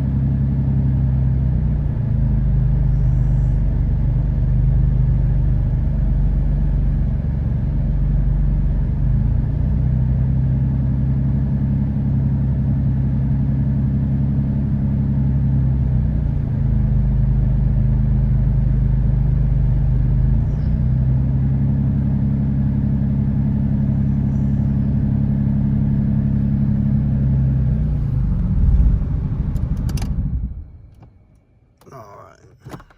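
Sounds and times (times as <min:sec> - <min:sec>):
car engine idling: 0:14.2 - 0:32.9.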